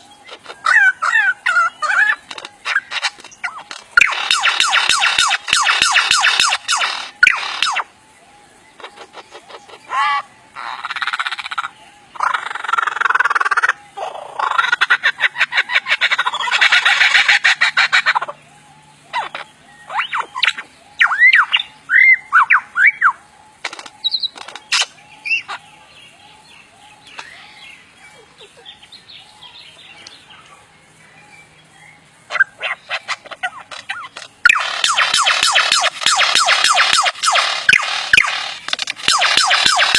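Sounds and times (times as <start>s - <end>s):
soft bird calls: 0.0s - 39.9s
bird stuttering rattles: 1.8s - 7.8s, 23.6s - 24.9s, 32.9s - 39.9s.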